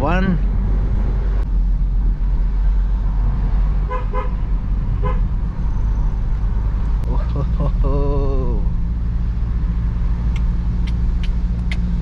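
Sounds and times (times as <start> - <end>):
car driving uphill rumble: 0.0 - 12.0
car horn beeps: 3.9 - 4.3.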